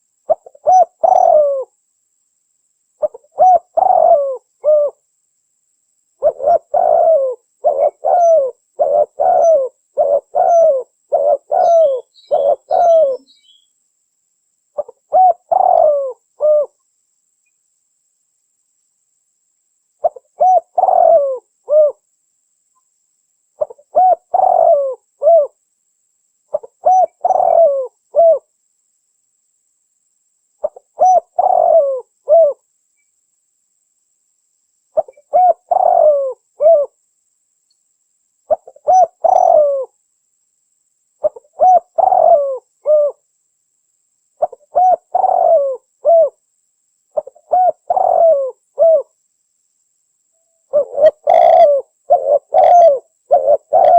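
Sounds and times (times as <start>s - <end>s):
dove cooing: 0.3s - 1.7s, 3.0s - 5.0s, 6.2s - 13.6s, 14.8s - 16.8s, 20.0s - 22.0s, 23.6s - 25.6s, 26.5s - 28.5s, 30.6s - 32.6s, 35.0s - 37.0s, 38.5s - 40.0s, 41.2s - 43.2s, 44.4s - 46.4s, 47.2s - 49.2s, 50.7s - 53.9s.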